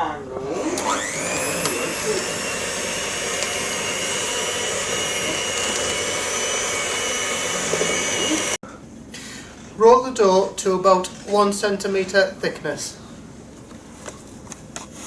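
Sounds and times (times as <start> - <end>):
electric mixer motor: 0.4 - 8.6.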